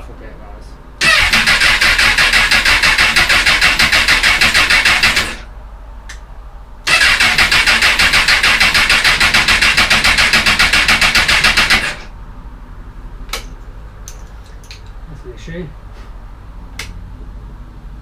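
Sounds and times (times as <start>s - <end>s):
motorcycle starter cranking: 1.0s - 5.5s, 6.9s - 12.1s.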